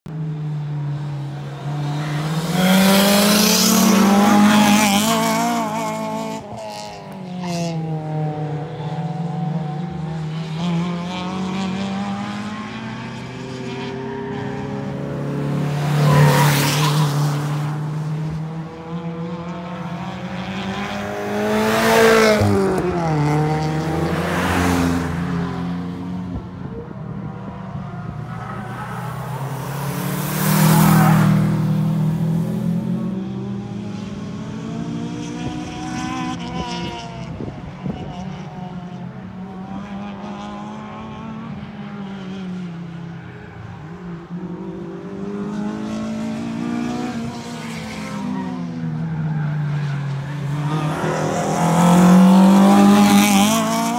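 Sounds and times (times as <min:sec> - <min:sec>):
car engine revving: 0:01.4 - 0:37.2, 0:50.1 - 0:53.9.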